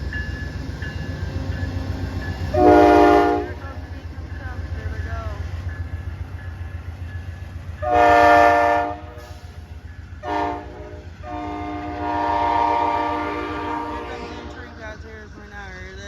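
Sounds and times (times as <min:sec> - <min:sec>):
locomotive horn blasts: 0:02.5 - 0:03.6, 0:07.8 - 0:09.4, 0:10.2 - 0:14.8.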